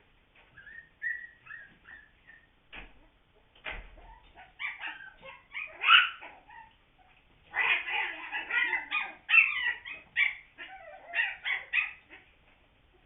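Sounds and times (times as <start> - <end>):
puppies whimpering and yipping: 0.5 - 2.6, 4.0 - 12.3.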